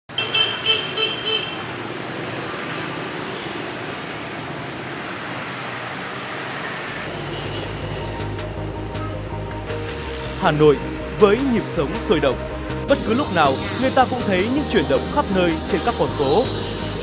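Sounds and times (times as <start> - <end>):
vehicle horn honking: 0.1 - 1.7, 7.1 - 8.0
passing traffic: 0.1 - 17.0.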